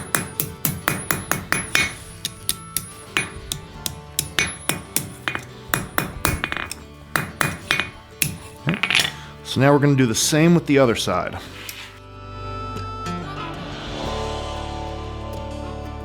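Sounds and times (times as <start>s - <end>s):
hammer ringing on anvil: 0.0s - 9.2s.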